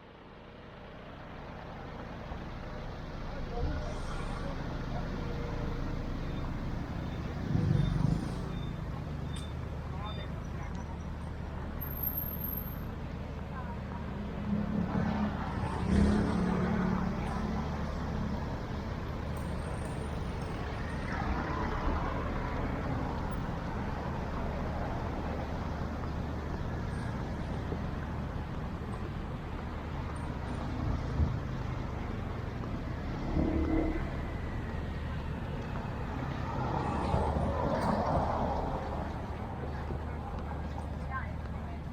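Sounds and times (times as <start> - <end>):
road traffic rumble: 0.0 - 41.9.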